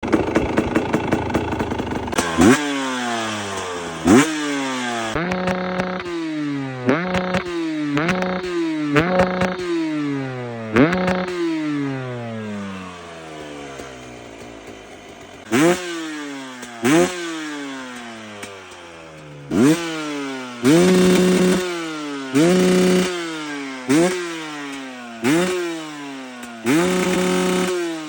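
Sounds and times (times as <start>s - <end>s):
two-stroke engine revving: 0.0s - 28.0s.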